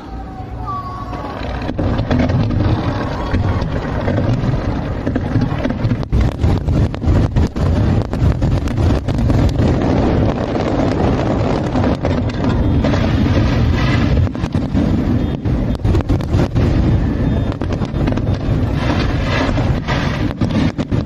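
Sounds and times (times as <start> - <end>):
low rumble: 0.0 - 21.0
fireworks bangs: 0.6 - 21.0.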